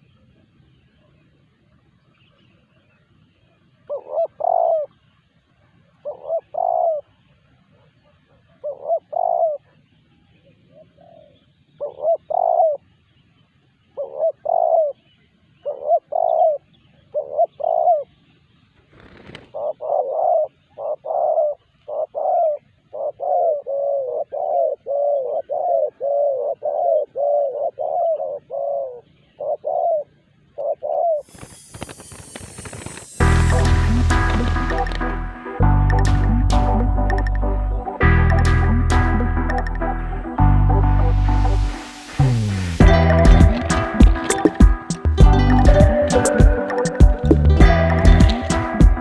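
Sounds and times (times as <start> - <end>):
dove cooing: 3.9 - 4.9, 6.0 - 7.0, 8.6 - 9.7, 11.0 - 12.8, 14.0 - 15.0, 15.6 - 18.1, 19.4 - 33.2, 42.8 - 49.0.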